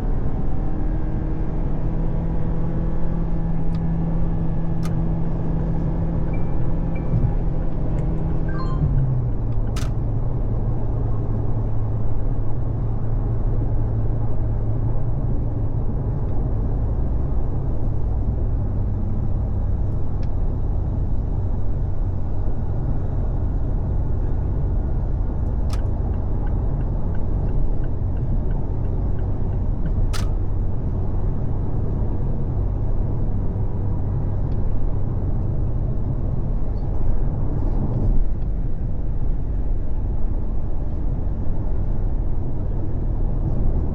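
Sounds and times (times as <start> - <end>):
car driving drone: 0.0 - 43.9
brief sharp clicks: 30.1 - 30.4.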